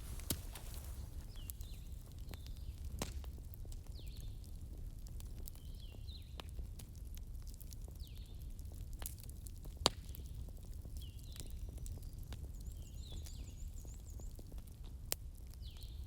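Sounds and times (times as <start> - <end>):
fire flames rumbling: 0.0 - 11.0
fire crackling and popping: 0.0 - 16.0.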